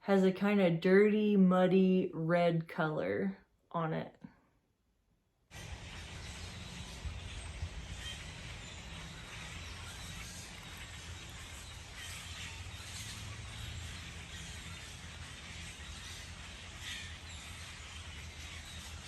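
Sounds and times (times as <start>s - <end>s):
steady low rumble: 5.6s - 18.3s
faint bird chirps: 5.6s - 19.0s.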